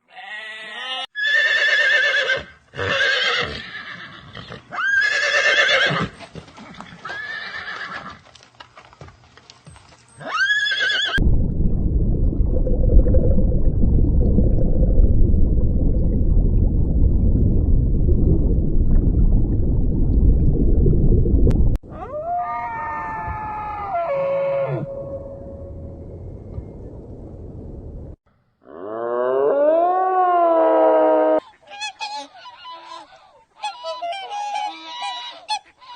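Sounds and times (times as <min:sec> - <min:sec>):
loud low rumbling noise: 0:11.2 - 0:21.8, 0:24.9 - 0:28.2.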